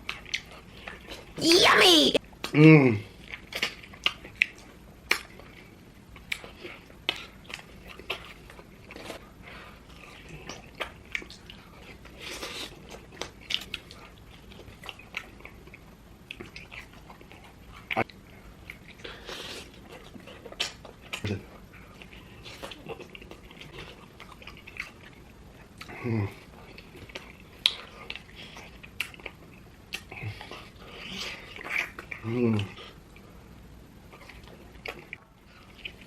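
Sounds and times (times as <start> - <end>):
wet mouth clicks and smacks: 3.3 - 5.4.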